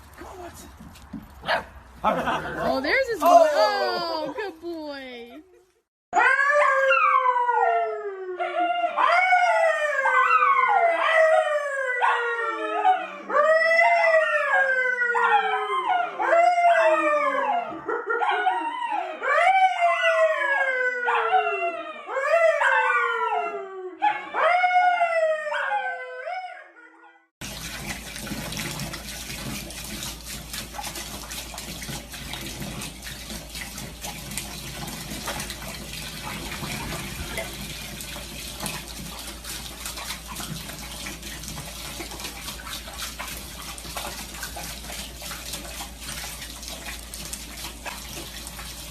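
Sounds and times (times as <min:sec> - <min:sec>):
dog howling: 0:06.2 - 0:27.0.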